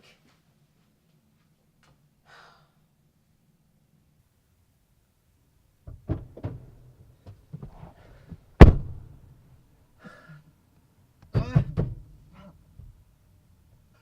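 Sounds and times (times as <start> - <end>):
heavy thump with ringing: 8.6 - 9.0.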